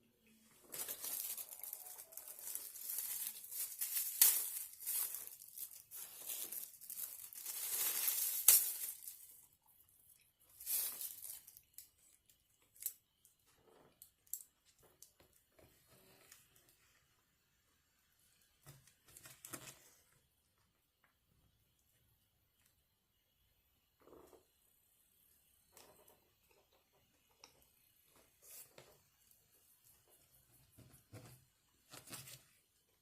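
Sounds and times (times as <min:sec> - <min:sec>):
food wrapper crinkling: 0:00.6 - 0:09.6, 0:10.5 - 0:13.0.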